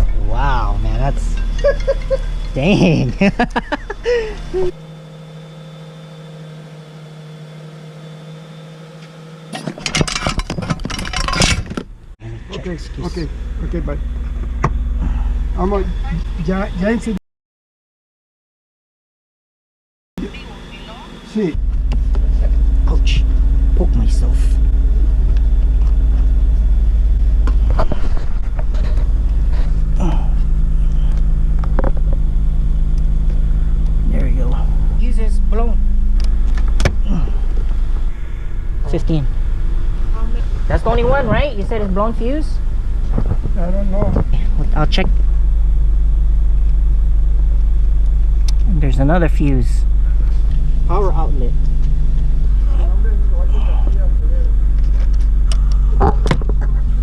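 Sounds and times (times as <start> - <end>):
car engine idling: 0.0 - 17.2, 20.2 - 57.0
rattling and clicks: 9.5 - 11.9.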